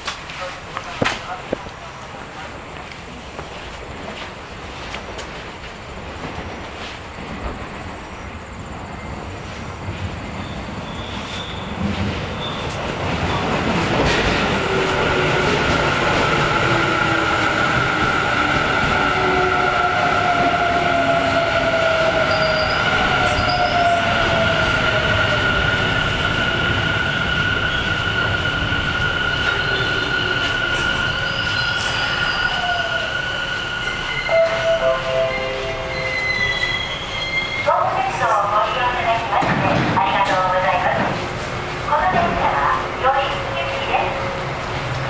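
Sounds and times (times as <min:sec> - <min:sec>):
train wheels squealing on rails: 0:06.8 - 0:13.4, 0:14.1 - 0:38.4.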